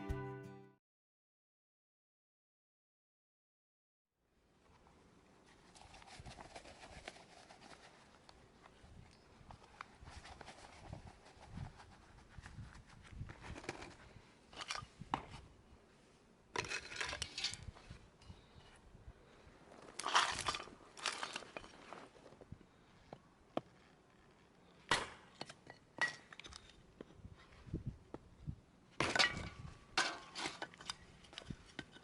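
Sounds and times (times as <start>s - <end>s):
rustling and crunching: 19.3s - 27.7s.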